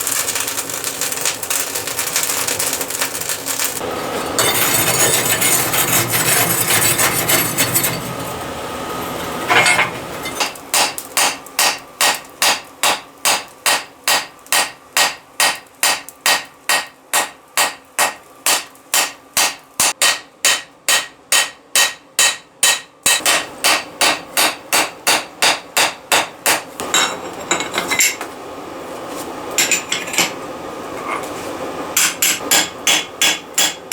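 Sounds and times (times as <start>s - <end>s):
hammer striking steel: 9.4s - 28.2s, 32.0s - 33.9s.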